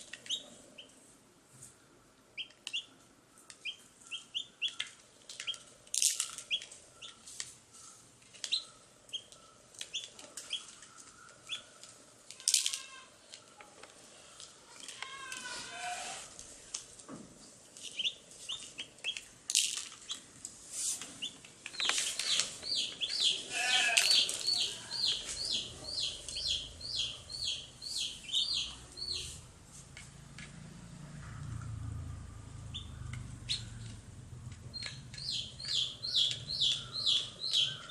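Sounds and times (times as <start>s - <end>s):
baby chicks peeping: 0.0s - 1.0s, 2.4s - 13.6s, 17.7s - 19.3s, 21.0s - 29.4s, 32.5s - 37.9s.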